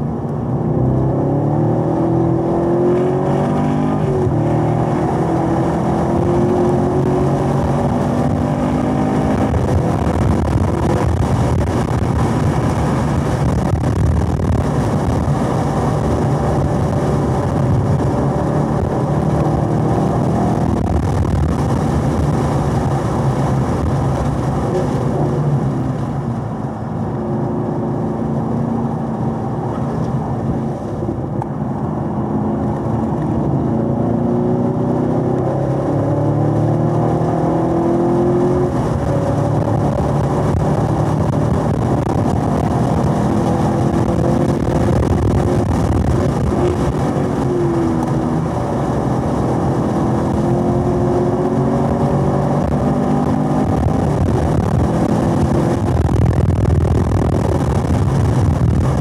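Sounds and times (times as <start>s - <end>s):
car engine at high revs: 0.0s - 59.0s
wind and tyre roar: 0.0s - 59.0s.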